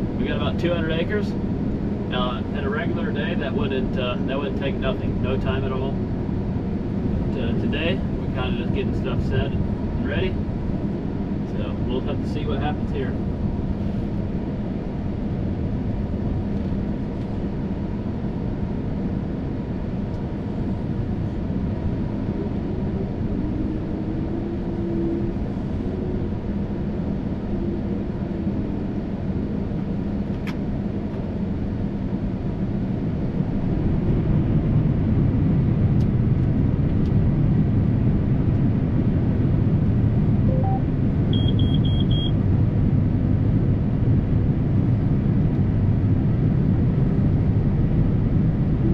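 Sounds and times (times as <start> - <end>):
vehicle engine rumbling: 0.0 - 48.9
electronic beeps: 40.5 - 42.3.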